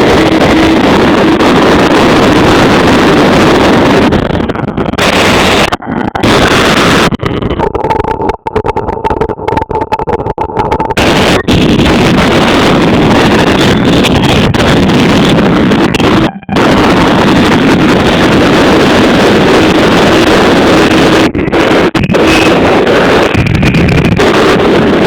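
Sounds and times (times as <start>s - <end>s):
motorbike engine at speed: 0.0s - 7.8s
wind rumbling on microphone: 0.0s - 25.0s.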